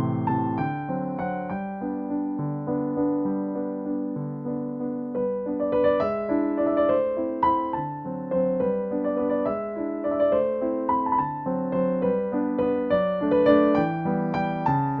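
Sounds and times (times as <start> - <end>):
gentle piano piece: 0.0 - 15.0.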